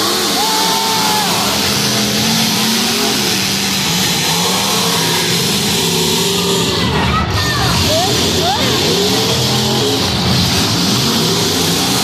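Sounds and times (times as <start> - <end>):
car engines revving: 0.0 - 12.0
grandstand crowd noise: 0.0 - 12.0.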